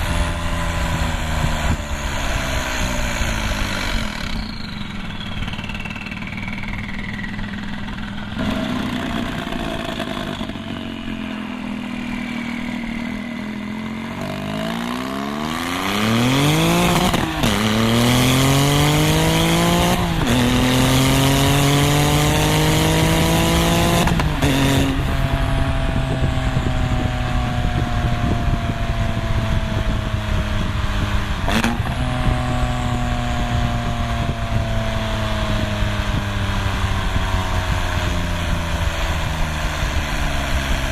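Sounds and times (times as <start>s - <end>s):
sports car engine revving: 14.2s - 40.9s.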